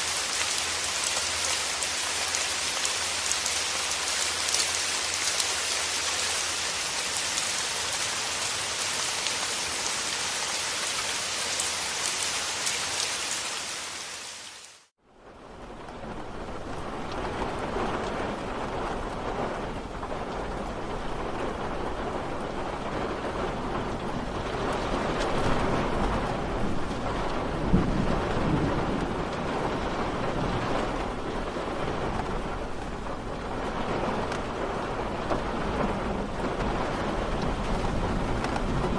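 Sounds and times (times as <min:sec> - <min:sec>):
rain falling: 0:00.0 - 0:38.9
low rumble of thunder: 0:15.2 - 0:38.9.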